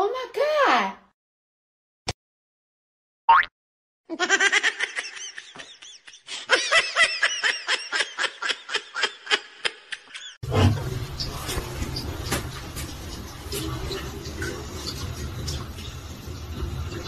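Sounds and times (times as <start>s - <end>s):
high-pitched laughter: 4.1s - 10.4s.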